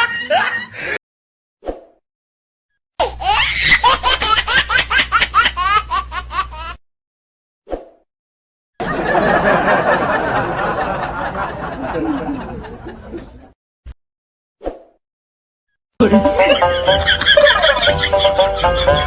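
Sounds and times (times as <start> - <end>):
high-pitched laughter: 0.0 - 0.8, 16.1 - 19.0
dense noisy laughter: 8.8 - 13.6, 16.0 - 19.0.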